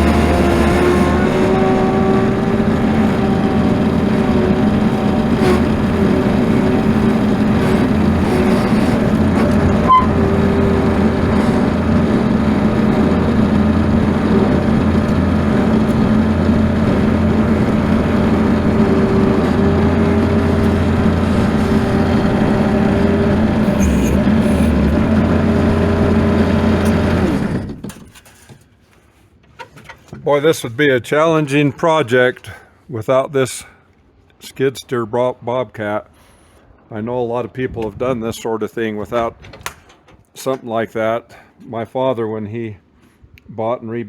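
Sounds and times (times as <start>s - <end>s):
loader engine running: 0.0s - 28.5s.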